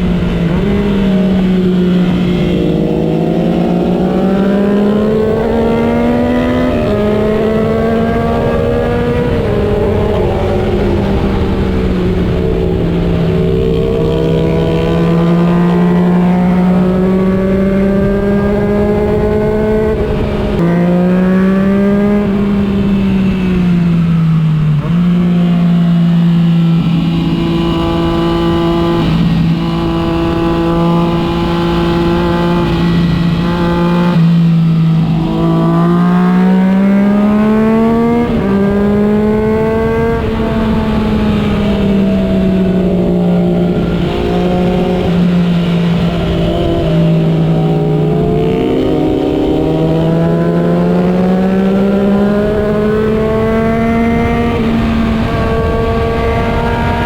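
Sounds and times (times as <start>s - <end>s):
wind rushing: 0.0s - 24.8s
motorcycle engine revving: 0.0s - 57.0s.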